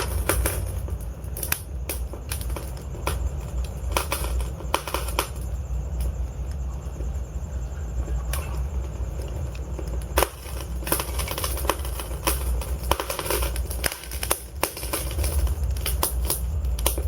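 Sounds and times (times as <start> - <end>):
logs crackling and popping: 0.0 - 7.1, 8.0 - 17.0
flames rumbling: 0.0 - 17.0.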